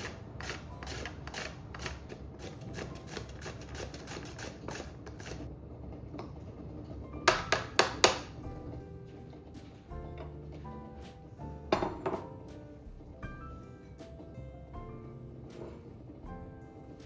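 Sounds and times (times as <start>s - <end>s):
grating on a metal grater: 0.0s - 5.5s.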